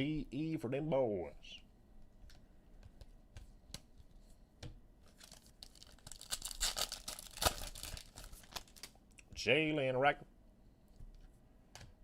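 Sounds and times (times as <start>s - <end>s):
card pack wrapper tearing: 5.2s - 9.0s.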